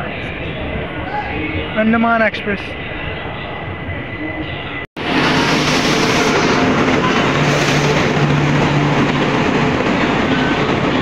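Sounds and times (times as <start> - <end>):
train wheels rushing on rails: 5.0 - 11.0.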